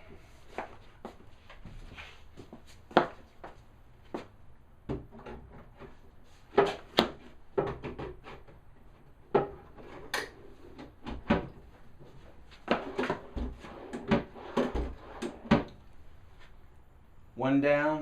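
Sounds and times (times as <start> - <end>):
drawer sliding on runners: 12.6 - 15.7.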